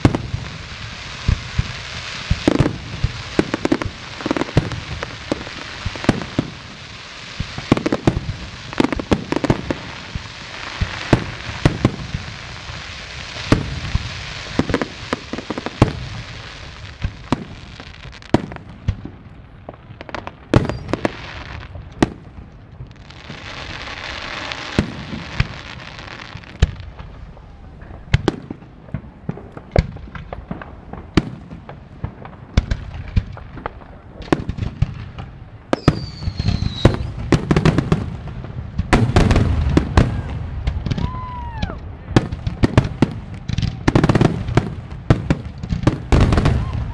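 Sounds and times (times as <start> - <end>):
fireworks crackle and hiss: 0.0 - 46.9
fireworks shells bursting: 34.4 - 37.9.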